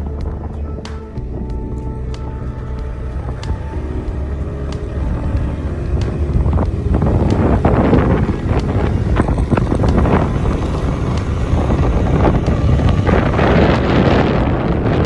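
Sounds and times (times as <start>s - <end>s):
motorbike rumble: 0.0s - 15.0s
wind buffeting microphone: 0.0s - 15.0s.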